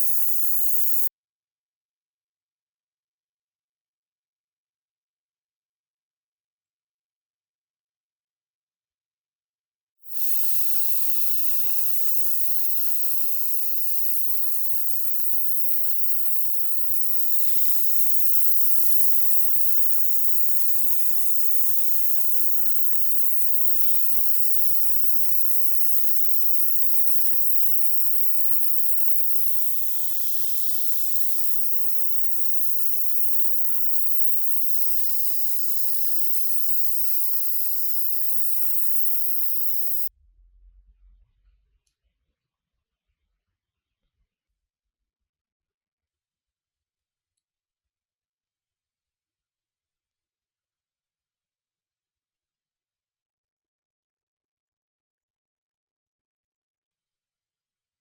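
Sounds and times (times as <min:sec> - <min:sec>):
compressed air hissing from air gun: 0:00.0 - 0:01.1, 0:10.1 - 0:40.1.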